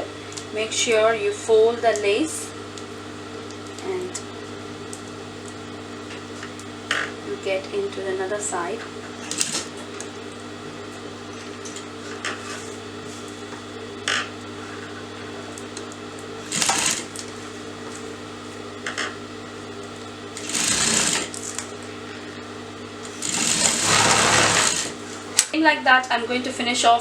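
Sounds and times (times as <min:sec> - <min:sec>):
electric sewing machine running: 0:09.2 - 0:10.2, 0:16.4 - 0:17.4, 0:20.3 - 0:25.2.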